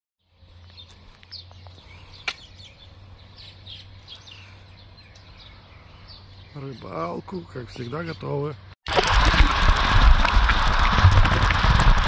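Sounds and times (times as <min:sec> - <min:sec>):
small birds chirping: 0:00.2 - 0:08.8.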